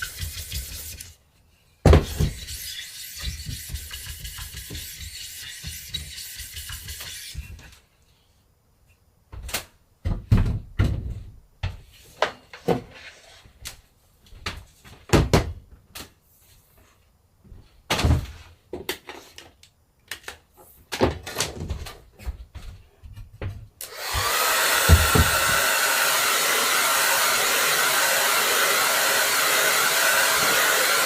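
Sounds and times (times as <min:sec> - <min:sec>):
hard objects knocking and clunking: 0:21.0 - 0:25.7.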